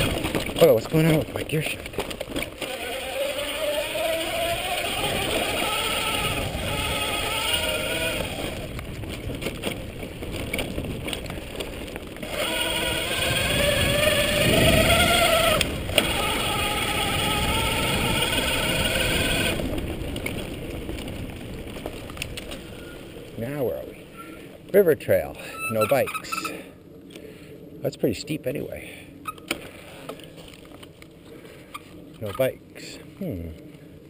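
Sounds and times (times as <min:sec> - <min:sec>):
tyre and wind rumble: 0:00.0 - 0:26.3
electric motor whining: 0:02.0 - 0:08.9, 0:12.2 - 0:20.3.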